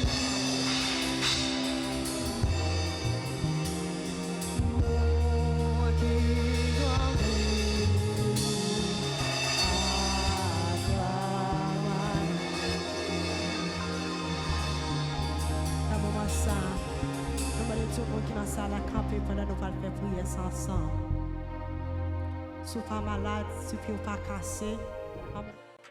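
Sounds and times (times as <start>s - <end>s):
band playing gospel music: 0.0s - 18.9s
drums: 0.0s - 19.4s
person singing: 0.0s - 21.0s
deep sustained bass line: 0.0s - 25.5s.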